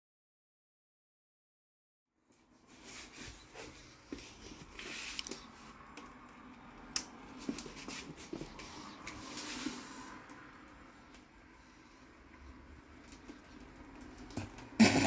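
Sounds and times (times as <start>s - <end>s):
faint rustling and rubbing: 2.3s - 6.3s, 7.3s - 10.3s.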